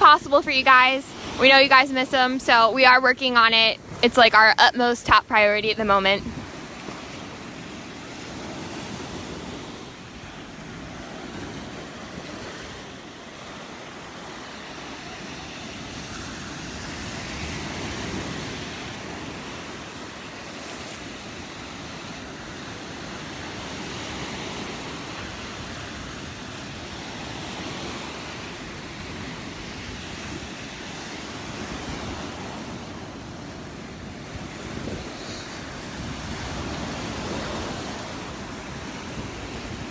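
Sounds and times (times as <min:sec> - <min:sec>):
surf breaking on beach: 0:00.0 - 0:39.9
wind on microphone: 0:00.0 - 0:39.9.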